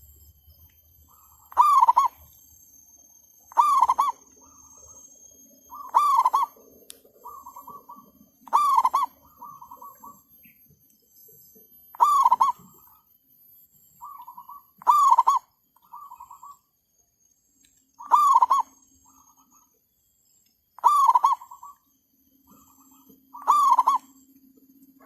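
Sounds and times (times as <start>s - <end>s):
dove cooing loudly: 1.5s - 2.2s, 3.5s - 4.2s, 5.7s - 6.6s, 7.2s - 10.2s, 12.0s - 12.7s, 14.0s - 15.4s, 18.0s - 18.8s, 20.8s - 21.8s, 23.4s - 24.1s
softer dove cooing: 12.0s - 12.7s, 20.8s - 21.7s, 23.4s - 24.1s.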